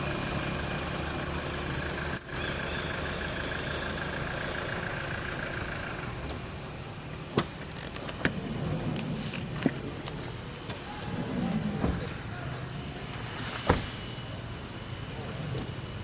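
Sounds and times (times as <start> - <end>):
vehicle engine running: 0.0 - 8.2.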